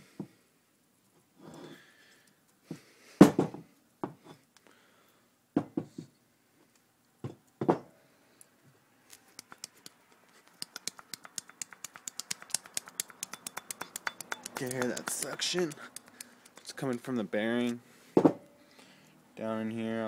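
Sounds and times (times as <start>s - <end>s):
bearing clicking sucking noises: 9.2s - 17.8s.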